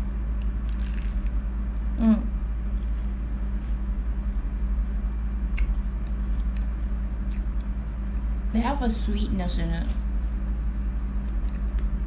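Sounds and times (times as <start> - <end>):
steady low hum: 0.0 - 12.0
person chewing crispy food: 0.6 - 1.4.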